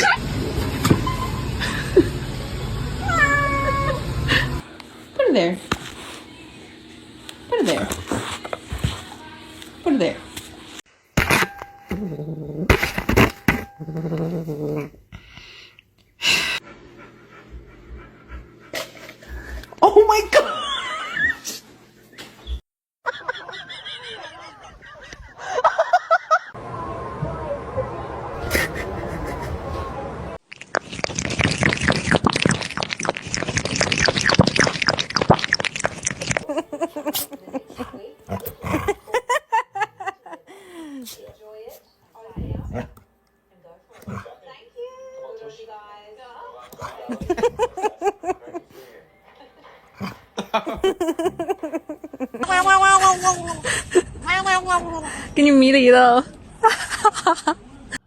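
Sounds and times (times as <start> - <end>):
harsh animal vocalising: 30.8 - 39.2, 44.0 - 44.4.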